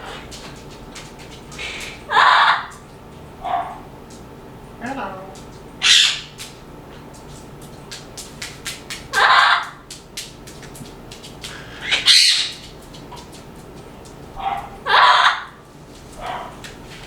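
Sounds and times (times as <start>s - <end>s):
parrots squawking: 1.6s - 2.8s, 5.8s - 6.4s, 9.1s - 9.8s, 11.6s - 12.7s, 14.4s - 15.6s.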